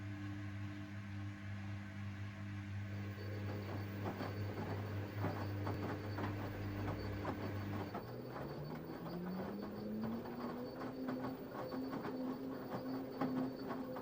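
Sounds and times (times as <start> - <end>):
washing machine motor humming: 2.9 - 14.0.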